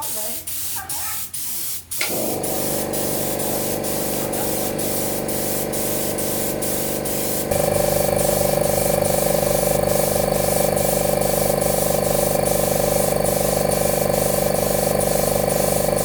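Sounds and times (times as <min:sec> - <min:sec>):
compressed air spray hissing: 0:00.0 - 0:16.0
motor hum: 0:07.4 - 0:16.0.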